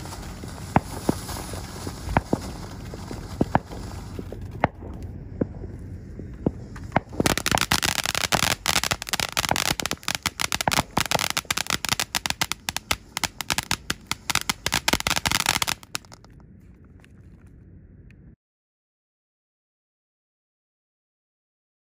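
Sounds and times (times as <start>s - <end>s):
firework fountain hissing sparks: 0.0s - 16.3s
crackling firework pops: 0.0s - 17.4s.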